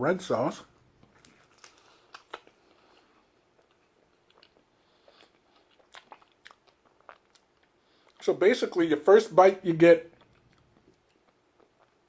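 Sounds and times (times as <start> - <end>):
man chewing with mouth smacks: 1.0 - 8.2, 10.1 - 12.0.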